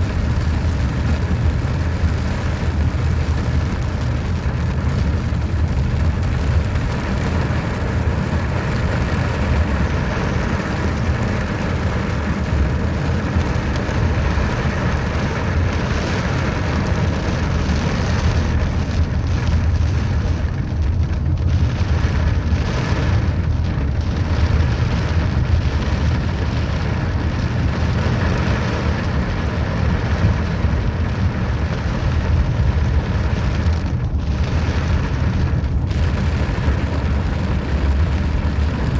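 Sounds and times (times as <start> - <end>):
rain falling: 0.0 - 38.9
low rumble: 16.6 - 38.9.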